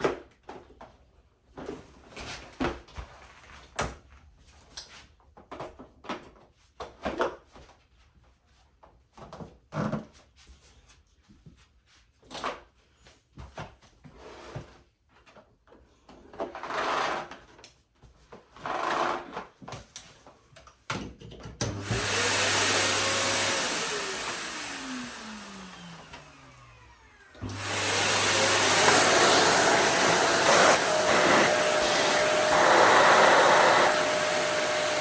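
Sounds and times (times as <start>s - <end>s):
vacuum cleaner motor running: 21.6s - 35.0s
vacuum cleaner motor winding down: 21.6s - 35.0s.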